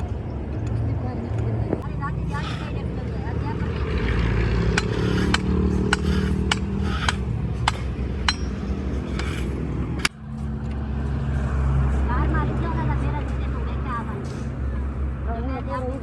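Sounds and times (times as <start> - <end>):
engine droning: 0.0 - 16.0
hammer striking metal: 4.7 - 10.2.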